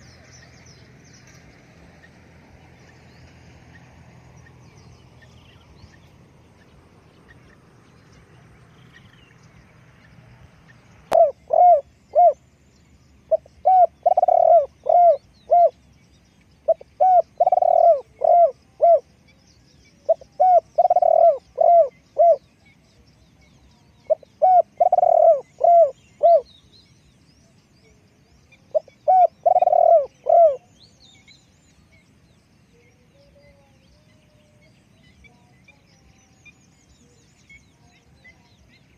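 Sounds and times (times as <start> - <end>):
dove cooing: 11.1 - 12.4, 13.3 - 15.8, 16.6 - 19.1, 20.0 - 22.6, 24.1 - 26.5, 28.6 - 30.7.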